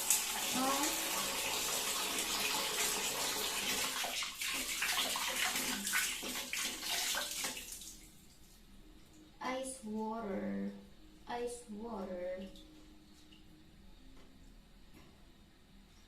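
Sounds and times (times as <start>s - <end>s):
tap water filling water balloon: 0.0s - 8.0s.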